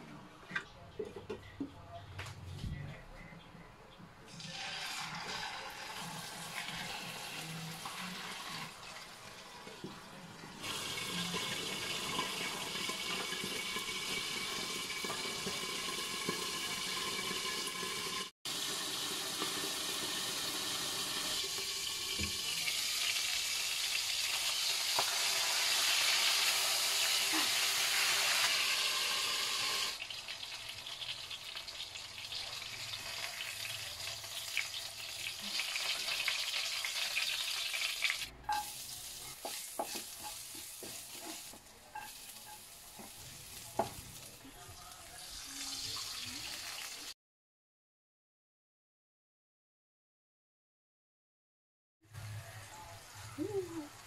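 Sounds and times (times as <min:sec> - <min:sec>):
pot bubbling at a hard boil: 0:10.6 - 0:23.2
fish sizzling in hot oil: 0:10.6 - 0:44.4.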